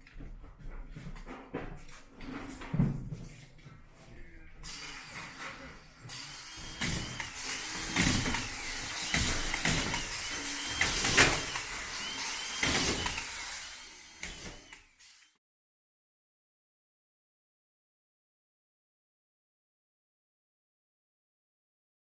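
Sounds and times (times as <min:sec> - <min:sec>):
power tool whirring: 0:04.6 - 0:15.4
sharp knocks and clatter: 0:05.2 - 0:14.8.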